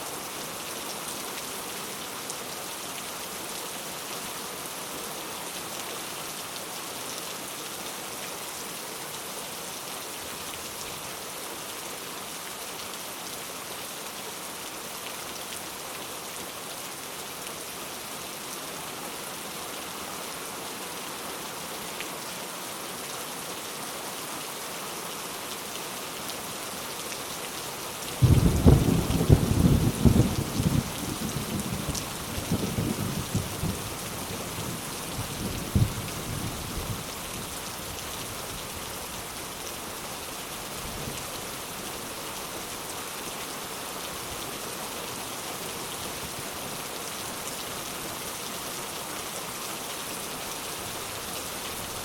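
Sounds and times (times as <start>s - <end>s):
steady rain falling: 0.0s - 52.0s
thunder clap rumbling: 28.2s - 30.8s.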